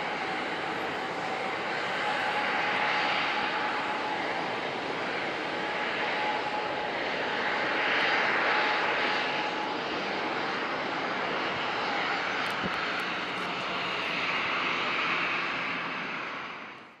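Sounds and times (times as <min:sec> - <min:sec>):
jet engine rushing: 0:00.0 - 0:16.8.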